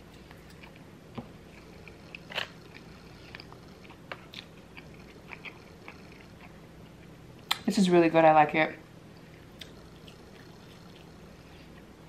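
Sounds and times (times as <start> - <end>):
close chewing with mouth smacks: 0.1 - 7.6, 9.4 - 11.9.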